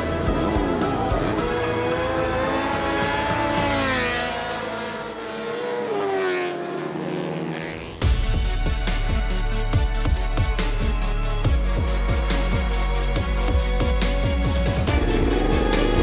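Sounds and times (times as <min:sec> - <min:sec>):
racing motorcycle engines revving: 0:00.0 - 0:08.1, 0:14.1 - 0:16.0
music with heavy beat: 0:08.0 - 0:16.0.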